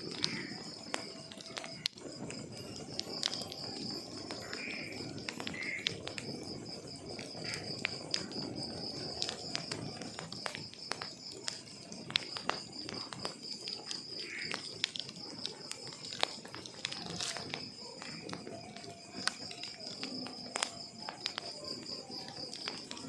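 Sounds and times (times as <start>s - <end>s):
cricket chirping: 0.0s - 23.0s
wood fire crackling: 0.0s - 23.0s.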